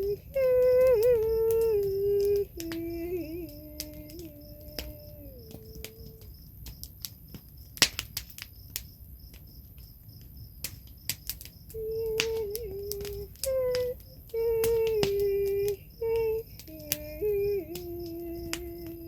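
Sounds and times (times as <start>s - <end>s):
woman singing wordless notes: 0.0s - 6.3s, 11.7s - 19.0s
crickets chirping: 0.0s - 19.0s
wood fire crackling: 0.0s - 19.0s.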